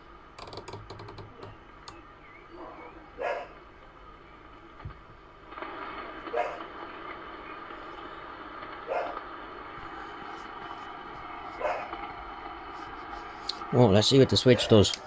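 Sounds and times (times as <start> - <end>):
receiver static hiss: 0.0 - 15.0
radio selector clicks: 0.4 - 2.0
short bark-like sounds: 2.6 - 3.6, 6.3 - 6.7, 8.9 - 9.2, 11.6 - 12.0.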